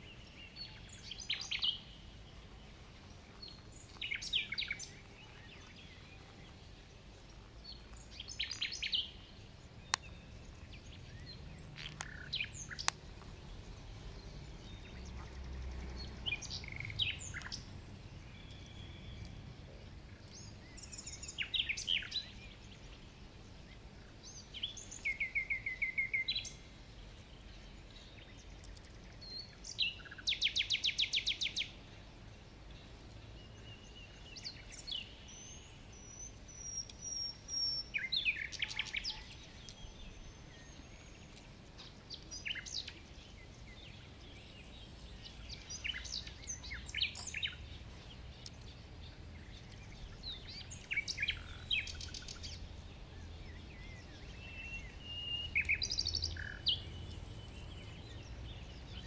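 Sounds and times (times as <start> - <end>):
wild birds chirping and calling: 0.0 - 59.0
bird trill: 14.2 - 19.4, 33.5 - 47.7, 53.5 - 59.0.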